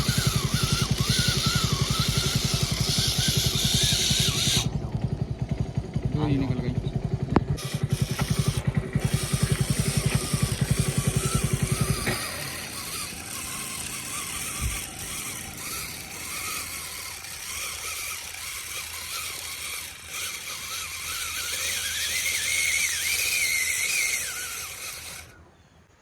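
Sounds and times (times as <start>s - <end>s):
small motor whining: 0.0s - 26.0s.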